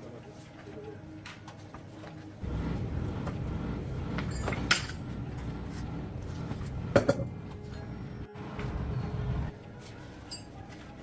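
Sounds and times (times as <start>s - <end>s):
steady low rumble: 2.4s - 6.9s
metal tools clinking: 10.2s - 10.6s.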